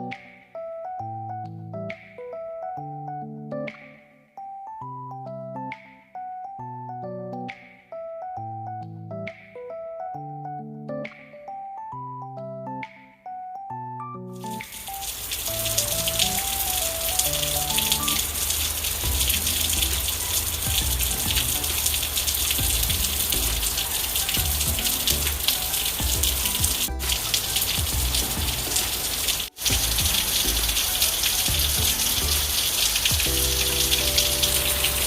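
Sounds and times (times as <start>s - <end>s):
soft background music: 0.0s - 35.0s
steady rain falling: 14.4s - 35.0s.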